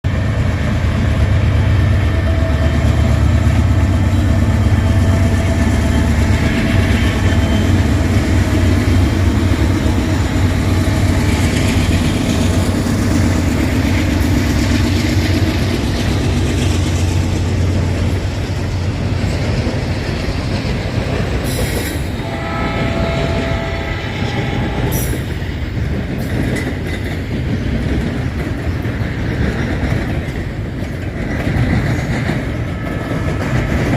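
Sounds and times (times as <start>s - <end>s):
locomotive engine rumble: 0.1s - 33.9s
railcar wheels clattering: 0.1s - 33.9s
train horn chord: 22.2s - 25.5s.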